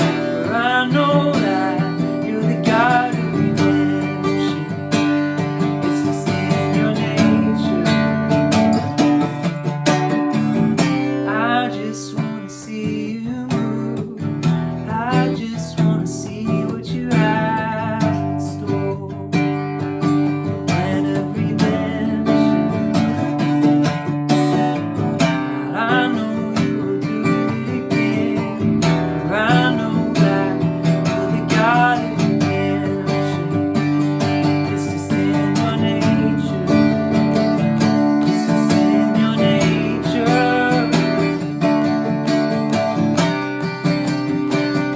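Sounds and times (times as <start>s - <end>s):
acoustic guitar strumming: 0.0s - 44.9s
man singing: 0.0s - 44.9s.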